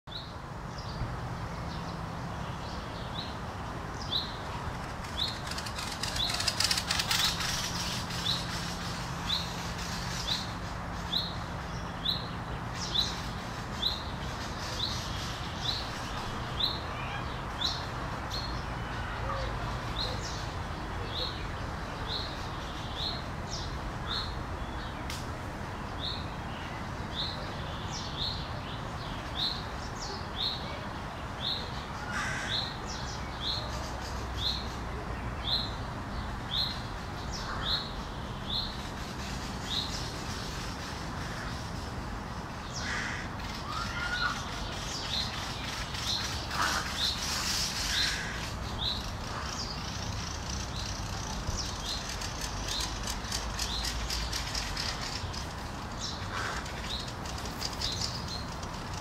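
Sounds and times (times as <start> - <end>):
harsh bird calls: 4.0 - 21.5, 42.6 - 59.0.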